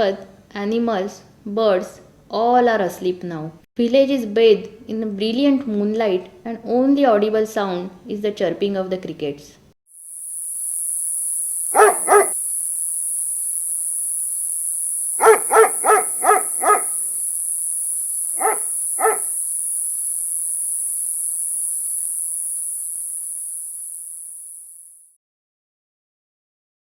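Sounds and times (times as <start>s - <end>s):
crickets chirping: 9.9s - 25.2s
dog barking: 11.8s - 12.4s, 15.2s - 17.2s, 18.4s - 19.4s.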